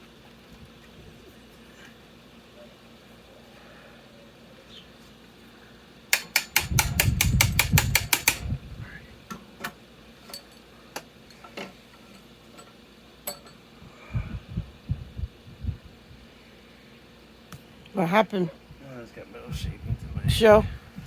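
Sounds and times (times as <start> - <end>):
low rumble: 14.1 - 16.2.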